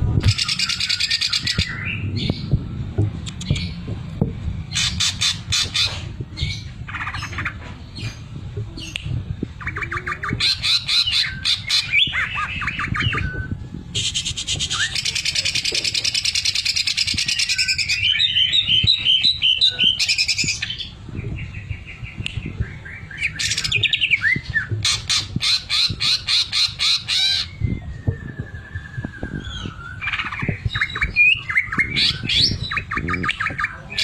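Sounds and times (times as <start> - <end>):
bird singing trills and whistles: 0.2 - 2.6, 9.6 - 34.0.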